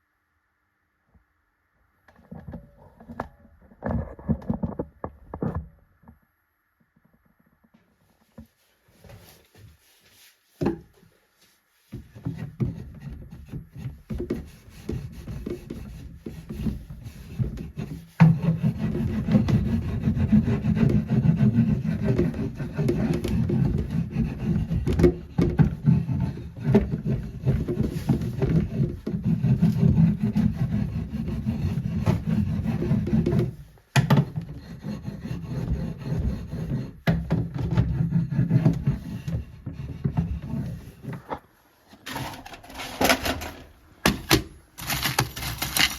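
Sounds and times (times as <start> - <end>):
rubbing on wood: 11.8 - 33.6, 34.4 - 41.3.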